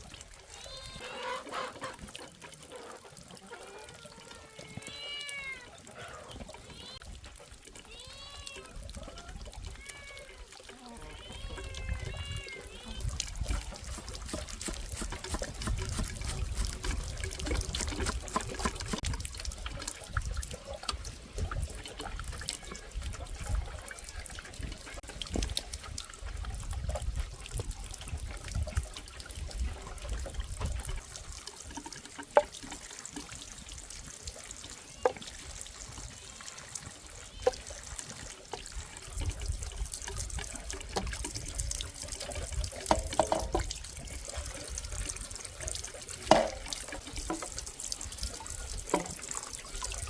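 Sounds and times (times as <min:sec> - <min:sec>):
water trickling and splashing: 0:00.0 - 0:50.0.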